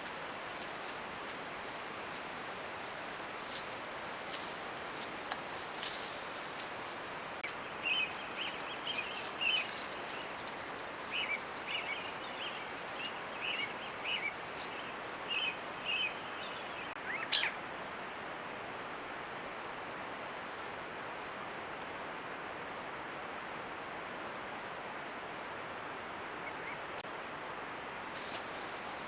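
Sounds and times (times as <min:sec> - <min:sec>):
steady background hiss: 0:00.0 - 0:29.0
bird chirping: 0:07.6 - 0:10.4, 0:11.1 - 0:17.6.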